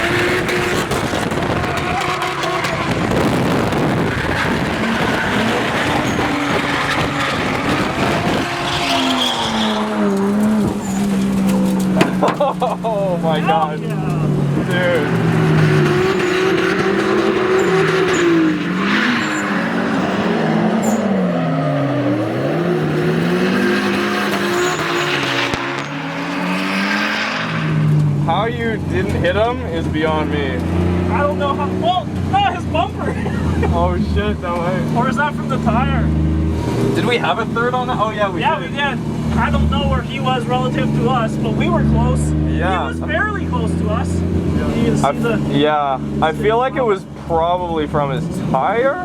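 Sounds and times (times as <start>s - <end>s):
tire squeal: 0.0s - 12.3s, 14.6s - 22.6s, 23.5s - 28.0s
tyres screeching: 0.0s - 22.7s, 23.6s - 28.4s
car engine revving: 0.0s - 49.0s.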